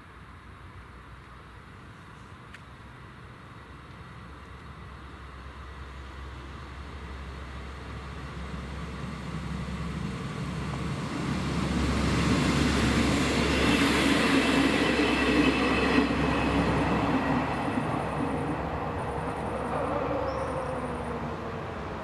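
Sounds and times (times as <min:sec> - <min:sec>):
passenger train passing: 0:00.2 - 0:22.0.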